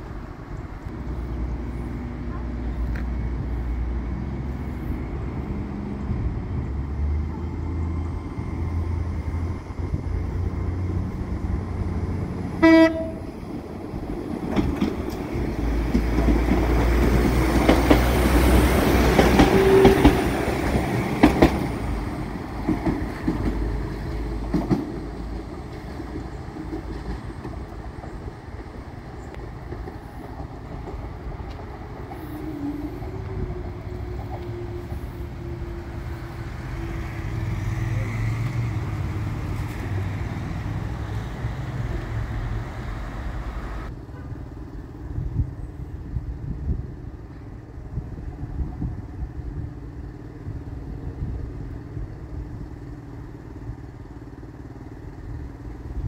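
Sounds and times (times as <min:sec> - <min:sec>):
diesel train low rumble: 0:00.0 - 0:56.0
train passing close: 0:00.0 - 0:56.0
train horn toot: 0:12.6 - 0:13.4, 0:19.4 - 0:20.3, 0:32.2 - 0:36.0, 0:44.0 - 0:44.5.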